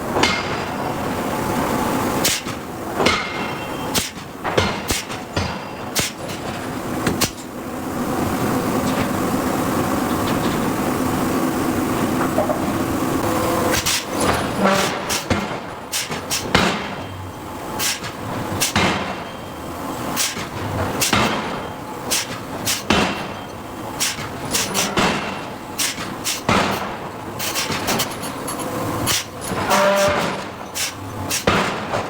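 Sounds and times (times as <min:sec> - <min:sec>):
forging hammer striking steel: 0:00.2 - 0:01.1, 0:02.2 - 0:07.5, 0:13.7 - 0:17.2, 0:17.8 - 0:19.4, 0:20.2 - 0:32.0.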